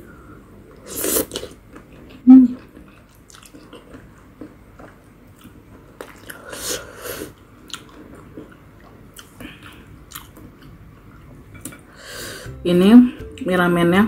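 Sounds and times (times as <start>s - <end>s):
wet chewing: 1.3s - 6.4s.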